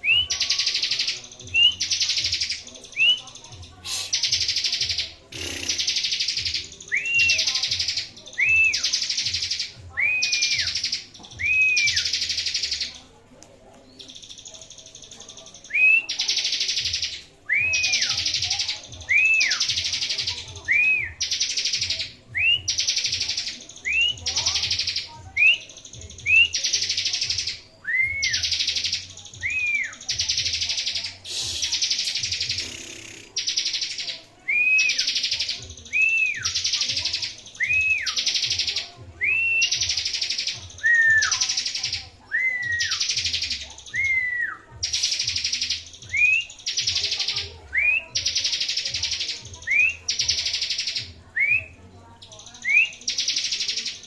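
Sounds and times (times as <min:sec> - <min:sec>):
bird buzzy trill: 0:03.8 - 0:08.1, 0:30.0 - 0:34.0.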